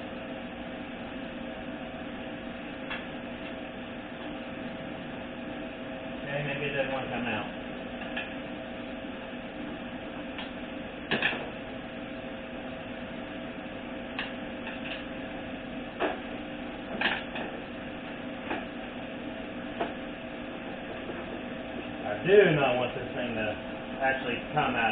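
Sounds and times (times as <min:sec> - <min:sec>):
background hum: 0:00.0 - 0:24.9
knocks and clicks of tools: 0:10.4 - 0:11.5.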